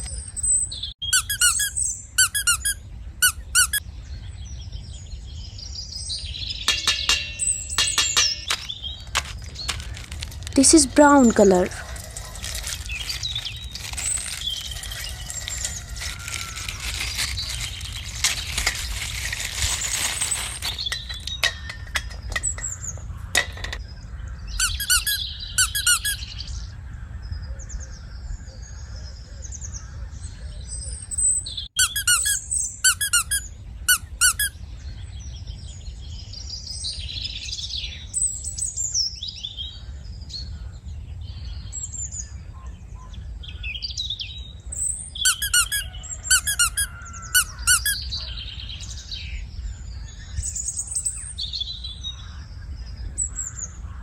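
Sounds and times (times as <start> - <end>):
bird chirping: 0.0 - 40.6, 41.2 - 54.0
plastic crinkling: 8.5 - 22.1.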